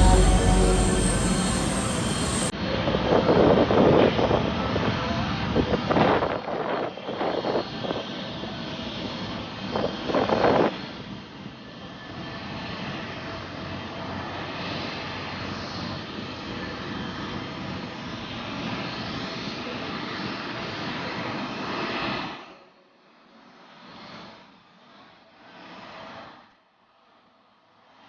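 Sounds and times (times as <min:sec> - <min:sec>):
jet engine rushing roar: 0:00.0 - 0:02.5.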